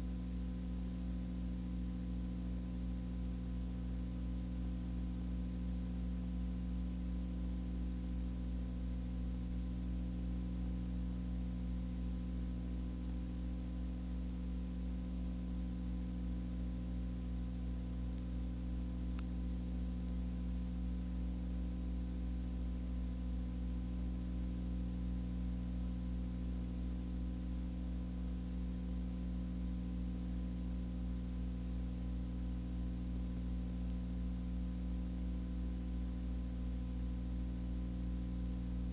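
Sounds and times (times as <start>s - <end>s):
steady low hum: 7.7s - 38.9s
constant hiss: 10.5s - 26.0s
faint tick: 18.1s - 18.4s, 19.1s - 20.3s, 33.8s - 34.1s.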